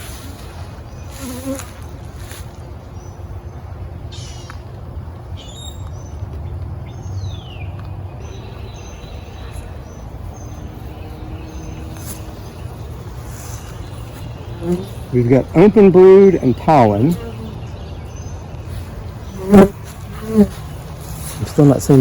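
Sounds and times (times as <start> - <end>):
honeybees buzzing: 0.0 - 2.8, 8.2 - 22.0.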